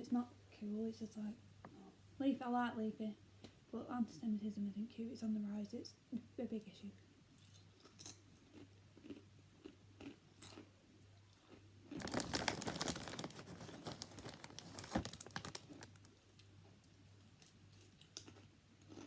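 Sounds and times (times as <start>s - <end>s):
crunchy food being chewed: 7.3s - 19.0s.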